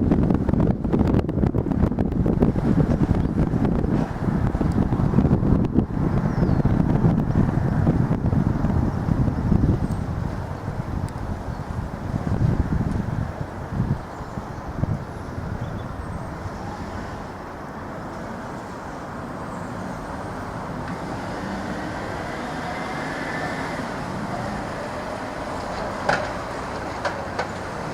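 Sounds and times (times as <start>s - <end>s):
train rumble: 0.0s - 27.9s
wheels clicking over rail joints: 20.4s - 27.9s.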